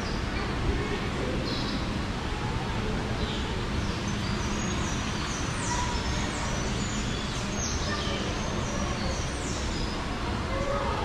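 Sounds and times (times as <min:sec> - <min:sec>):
small birds chirping: 0:03.2 - 0:10.6.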